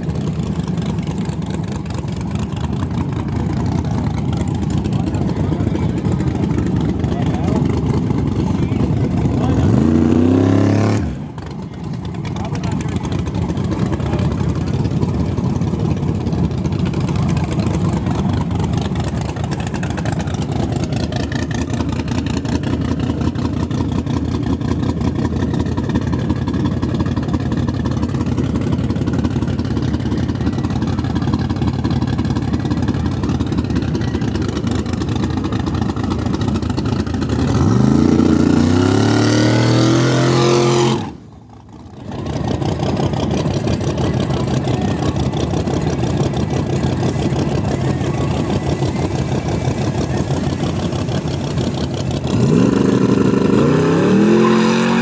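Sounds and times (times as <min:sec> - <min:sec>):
drag race car engines: 0:00.0 - 0:55.0
car accelerating hard: 0:04.5 - 0:11.5, 0:36.7 - 0:41.2, 0:42.1 - 0:55.0.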